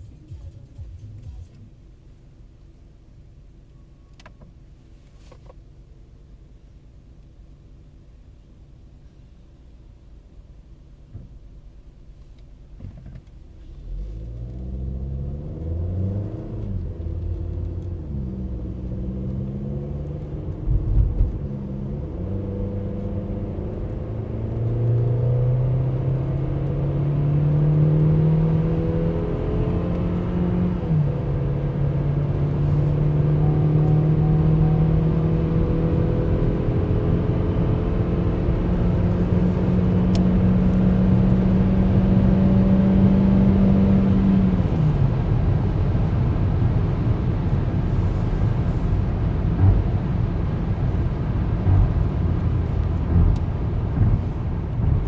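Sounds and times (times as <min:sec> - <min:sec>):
car engine accelerating: 0:00.0 - 0:02.0, 0:12.8 - 0:55.0
tyre and road rumble: 0:44.0 - 0:55.0.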